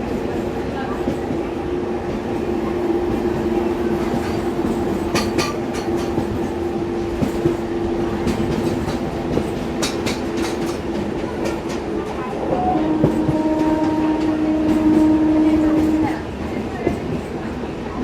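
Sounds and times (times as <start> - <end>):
train rumbling along track: 0.0 - 18.0
wheels clicking over rail joints: 4.0 - 13.4.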